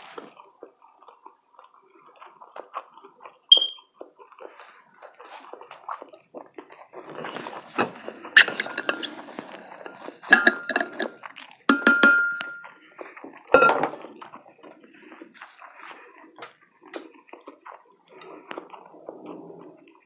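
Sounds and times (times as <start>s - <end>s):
cutlery clinking against dish: 7.8s - 12.8s, 13.6s - 14.0s.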